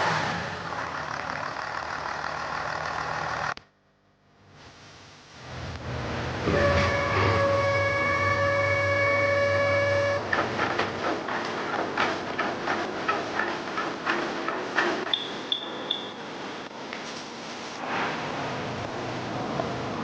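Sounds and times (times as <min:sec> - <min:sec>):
short high beeps: 0:15.1 - 0:16.2.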